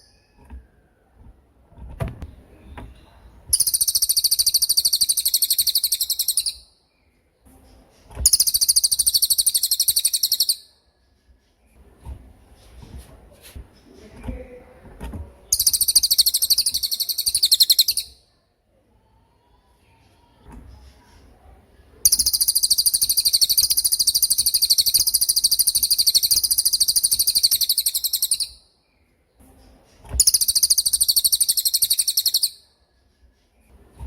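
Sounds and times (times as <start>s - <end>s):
songbird rapid trill: 3.6s - 6.7s, 8.3s - 10.7s, 15.5s - 18.2s, 22.1s - 28.6s, 30.2s - 32.6s.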